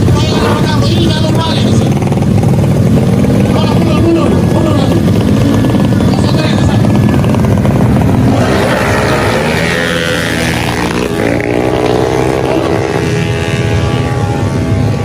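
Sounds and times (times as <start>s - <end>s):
scooter engines revving hard: 0.0s - 15.0s.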